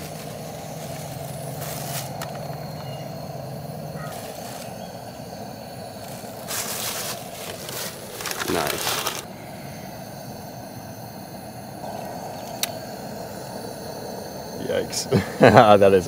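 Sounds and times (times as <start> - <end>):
low hum: 0.0 - 15.4
gas camping stove burner: 0.0 - 16.0
rustling of ingredients: 6.0 - 9.3.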